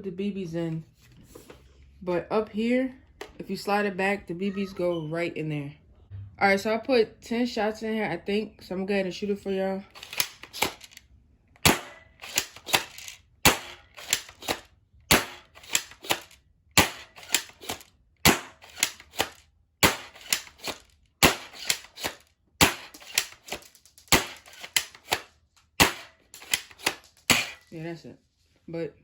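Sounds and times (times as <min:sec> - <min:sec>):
plastic pump racking clacks: 0:10.0 - 0:11.0, 0:11.7 - 0:17.9, 0:18.6 - 0:27.7
airsoft shotgun shots snapping: 0:11.6 - 0:27.7.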